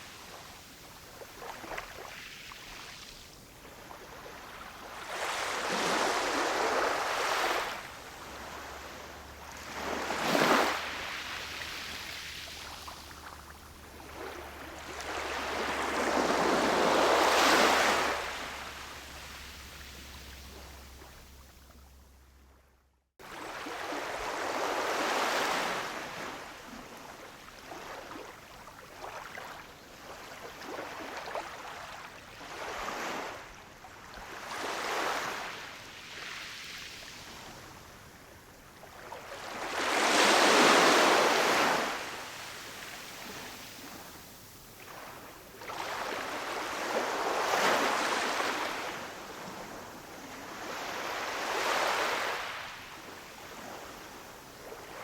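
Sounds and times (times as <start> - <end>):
ocean waves breaking on shore: 0.0 - 21.6, 23.2 - 55.0.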